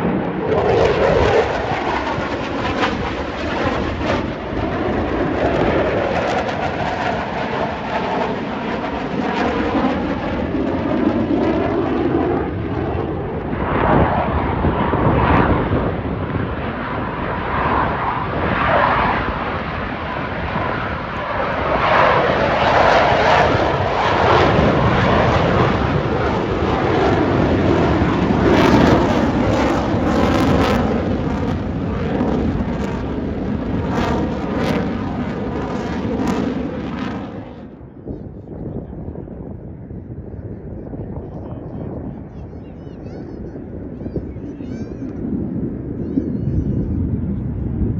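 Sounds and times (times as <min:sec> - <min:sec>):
jet rumble: 0:00.0 - 0:47.9.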